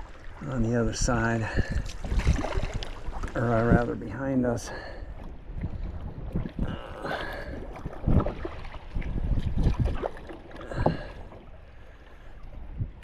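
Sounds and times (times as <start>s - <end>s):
paddle splashing in water: 1.6s - 3.9s, 5.2s - 12.6s.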